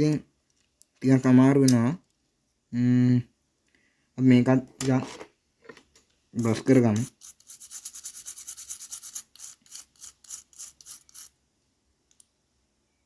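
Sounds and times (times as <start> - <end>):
small brush scrubbing: 6.4 - 11.4.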